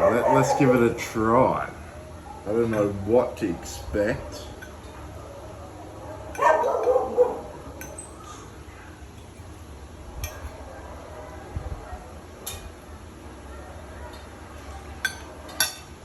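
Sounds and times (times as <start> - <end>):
utensil clinking on plate: 7.7 - 8.4, 9.1 - 9.5, 10.2 - 10.6, 15.0 - 15.9.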